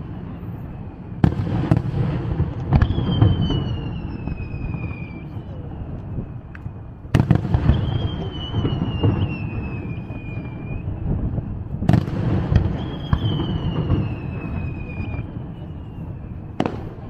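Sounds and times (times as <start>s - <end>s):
fireworks bangs: 0.0s - 17.0s
fireworks rumbling and crackle: 0.0s - 17.0s
falling whistling tone: 2.8s - 6.4s, 7.6s - 11.1s, 12.6s - 16.7s.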